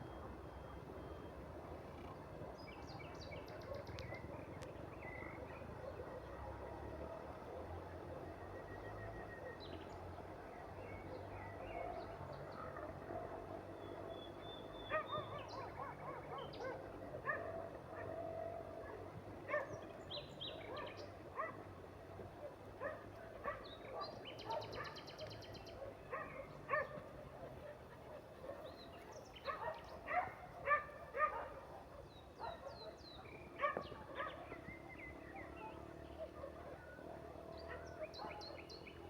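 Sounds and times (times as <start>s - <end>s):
dog barking: 11.7s - 13.6s, 14.9s - 21.7s, 22.4s - 34.7s, 35.4s - 38.7s.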